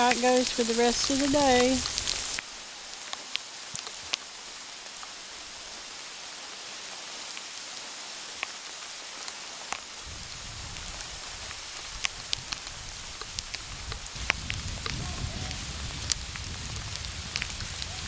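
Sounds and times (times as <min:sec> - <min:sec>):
sleet hissing: 0:00.0 - 0:02.4
ice pellets ticking: 0:00.0 - 0:04.3.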